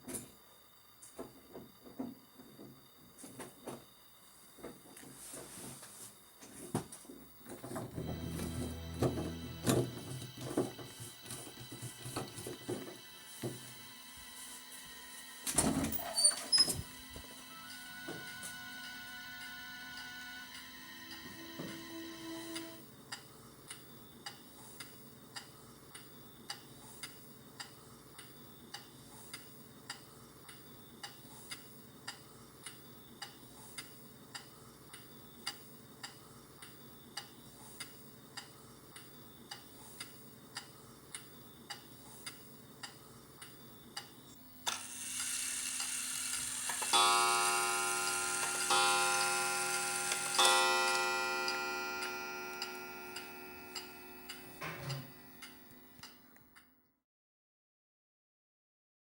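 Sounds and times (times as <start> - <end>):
ringing chord: 8.0 - 10.9, 17.5 - 22.8, 46.9 - 55.4
faint ticking: 22.6 - 44.2.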